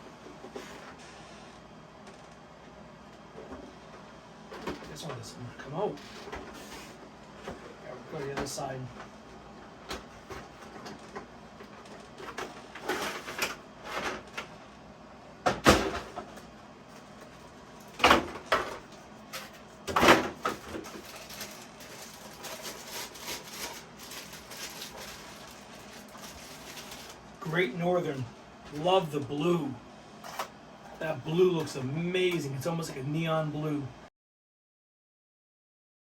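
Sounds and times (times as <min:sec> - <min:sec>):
cardboard packaging rustling: 0:20.4 - 0:27.6.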